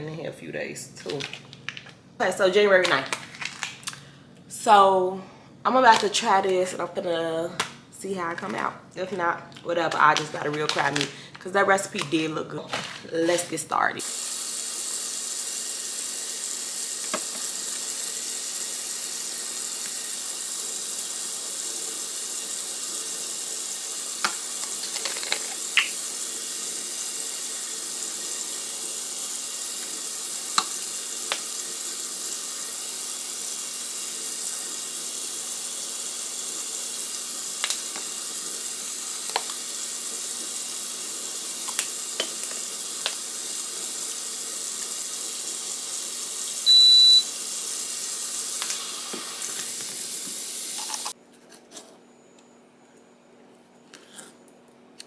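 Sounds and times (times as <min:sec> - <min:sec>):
food sizzling in frying pan: 0:14.0 - 0:51.2.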